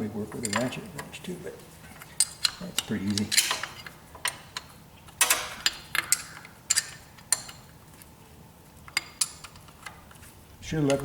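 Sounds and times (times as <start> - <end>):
wrench clinking on metal: 2.1 - 7.7.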